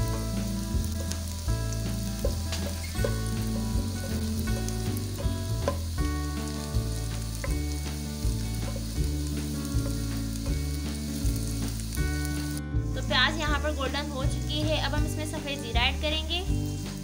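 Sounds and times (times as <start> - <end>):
background music with bass: 0.0 - 17.0
onions sizzling in oil: 0.0 - 17.0.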